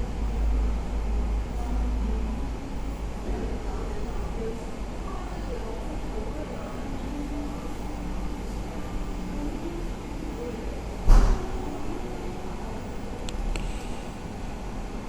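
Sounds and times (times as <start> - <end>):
faint chatter of customers: 0.0 - 15.0
sharp thump: 11.1 - 11.4.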